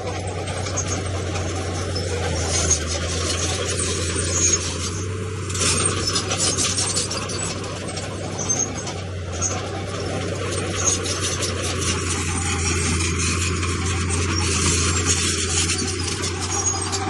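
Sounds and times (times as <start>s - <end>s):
bulldozer engine hum: 0.0s - 17.0s
rock scraping and grinding: 0.0s - 17.0s.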